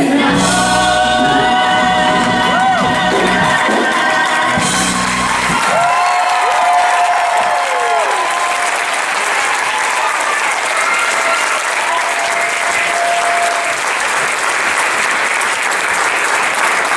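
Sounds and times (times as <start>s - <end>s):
audience applauding: 1.8s - 16.9s.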